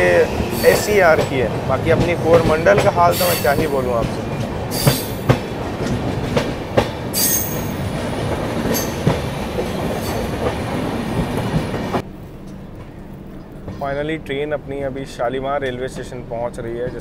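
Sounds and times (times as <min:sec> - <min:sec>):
high wheel squeal: 0:00.0 - 0:01.4, 0:03.1 - 0:03.9, 0:04.7 - 0:05.3, 0:07.1 - 0:07.8
train wheels rumbling on rails: 0:00.0 - 0:17.0
clacks at rail joints: 0:00.4 - 0:12.0, 0:15.6 - 0:17.0.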